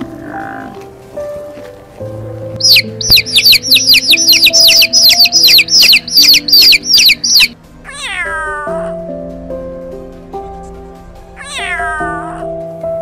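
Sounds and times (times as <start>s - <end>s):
soft piano music: 0.0s - 13.0s
rapid bird chirping: 2.6s - 7.6s
cat meowing: 7.3s - 9.0s, 11.4s - 12.5s.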